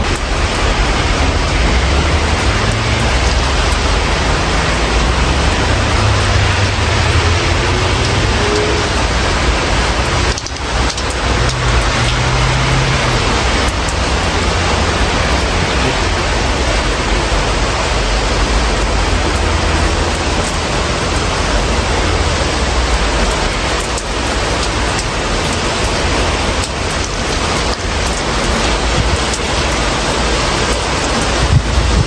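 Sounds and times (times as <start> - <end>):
low rumble: 0.0 - 23.3
rain drop ticks: 0.0 - 32.0
steady rain hiss: 0.0 - 32.0.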